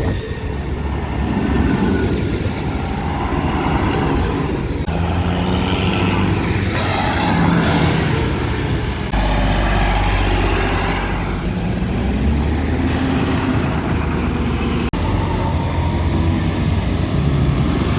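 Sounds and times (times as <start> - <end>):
tractor engines running: 0.0 - 17.9.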